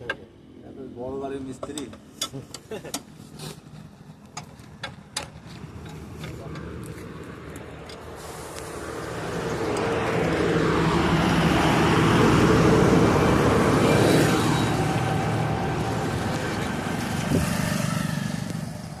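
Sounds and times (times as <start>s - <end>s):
vehicle passing by: 5.6s - 19.0s.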